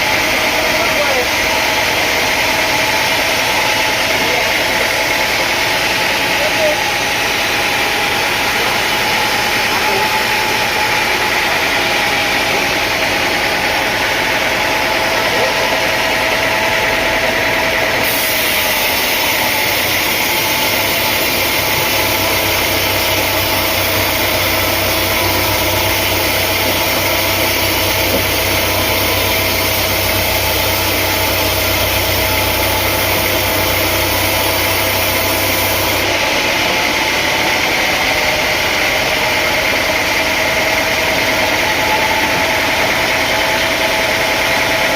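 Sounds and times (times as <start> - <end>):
engine running steadily: 0.0 - 44.9
loud hiss: 18.0 - 36.1.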